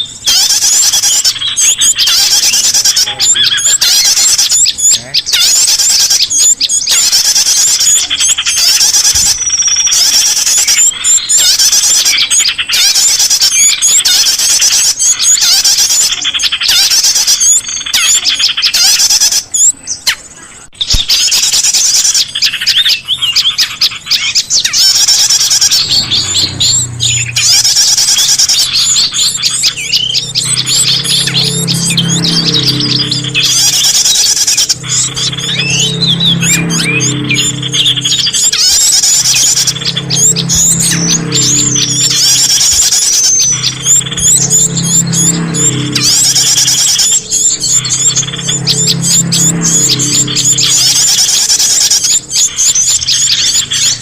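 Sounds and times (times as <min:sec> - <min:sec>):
songbirds chirping: 0:00.0 - 0:54.0
low steady hum: 0:25.0 - 0:54.0.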